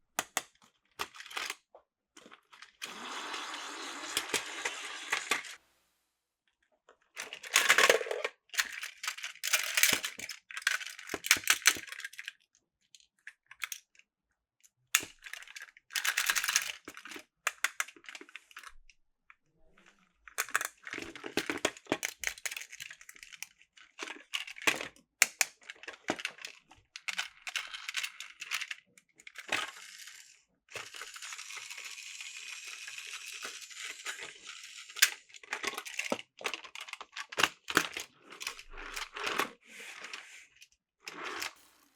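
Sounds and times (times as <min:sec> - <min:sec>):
plastic toy pieces rattling: 0:07.2 - 0:12.3, 0:15.0 - 0:18.6, 0:20.4 - 0:40.2.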